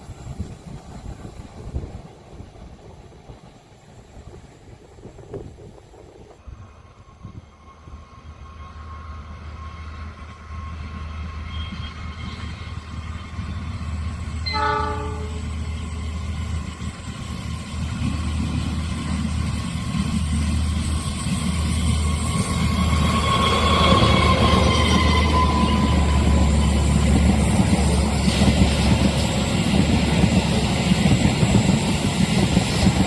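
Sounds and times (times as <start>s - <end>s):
diesel train engine hum: 0.0s - 33.0s
train horn blast: 14.4s - 15.7s.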